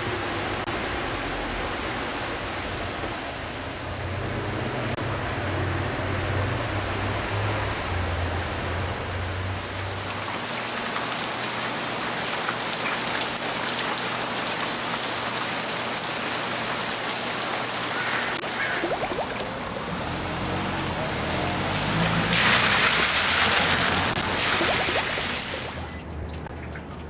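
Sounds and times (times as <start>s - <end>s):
rain falling: 0.0s - 27.0s
vehicle engine hum: 19.4s - 24.4s.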